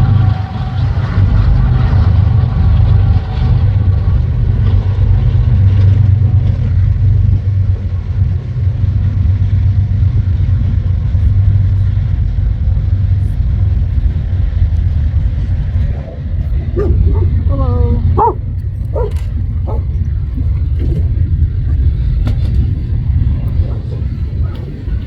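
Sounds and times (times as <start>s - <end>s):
freight train rumbling past: 0.0s - 25.0s.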